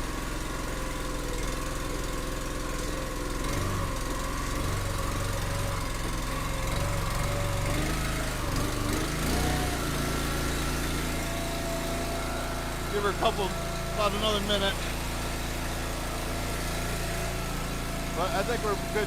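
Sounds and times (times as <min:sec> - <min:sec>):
small gasoline engine idling: 0:00.0 - 0:19.0.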